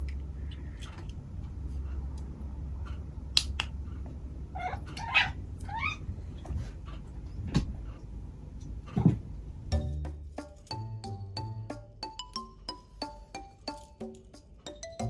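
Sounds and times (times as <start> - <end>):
cat meowing: 4.6 - 6.0.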